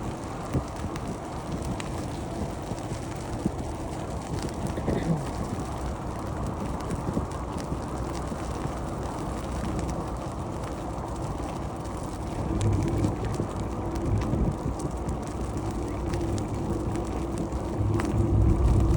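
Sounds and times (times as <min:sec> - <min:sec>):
bicycle riding rumble: 0:00.0 - 0:18.9
wind buffeting microphone: 0:00.0 - 0:18.9
low hum: 0:08.4 - 0:18.9.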